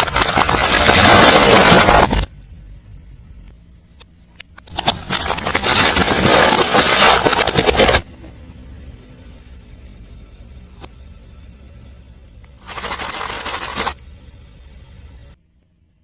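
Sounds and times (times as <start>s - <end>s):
car tyre crushing crunchy objects: 0.0s - 2.3s, 4.7s - 8.1s.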